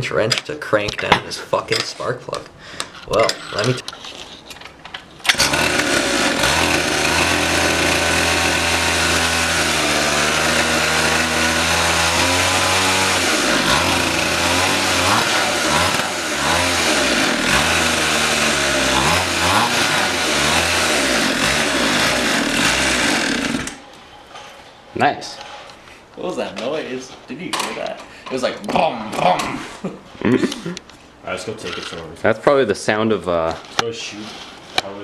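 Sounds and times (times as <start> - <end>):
loud rattly motorbike engine revving: 5.3 - 23.8.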